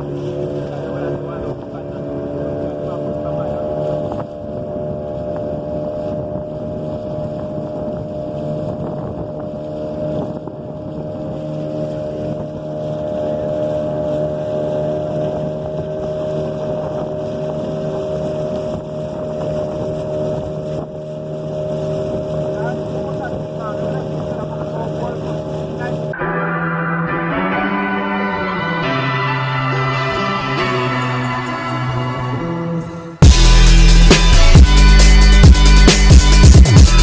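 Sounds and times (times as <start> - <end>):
wind buffeting microphone: 0.0 - 26.2
speedboat engine running: 0.0 - 37.0.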